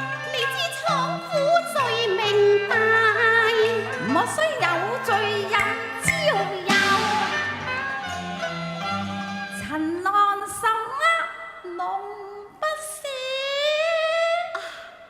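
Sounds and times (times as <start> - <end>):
woman singing opera: 0.0 - 7.5, 9.5 - 15.0
instrumental accompaniment: 0.0 - 10.2.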